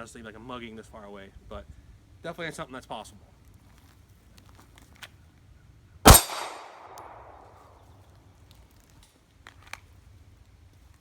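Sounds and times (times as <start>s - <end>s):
pistol shot: 6.1s - 7.6s.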